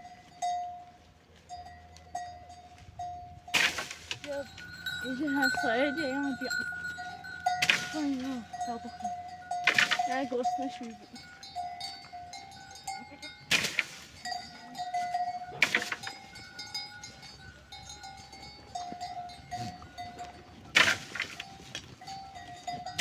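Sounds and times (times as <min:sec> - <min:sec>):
animal neck bells ringing: 0:00.0 - 0:23.0
animals bleating: 0:04.3 - 0:12.1, 0:18.8 - 0:20.7.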